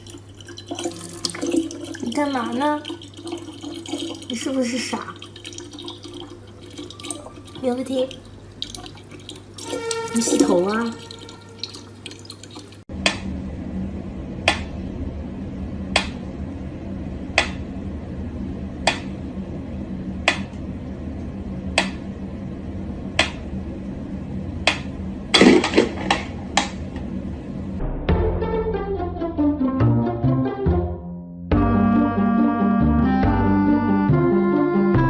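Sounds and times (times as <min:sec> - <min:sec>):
water dripping: 0:00.0 - 0:12.9
low steady hum: 0:00.0 - 0:28.1.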